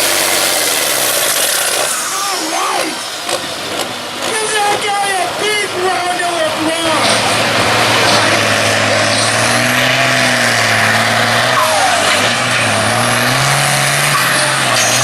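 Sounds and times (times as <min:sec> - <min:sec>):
tractor engine running at high revs: 0:00.0 - 0:15.0.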